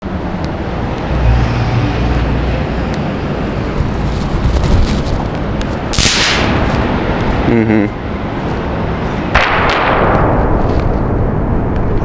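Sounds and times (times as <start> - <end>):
traffic noise: 0.0 - 10.9
wind on microphone: 2.2 - 7.5.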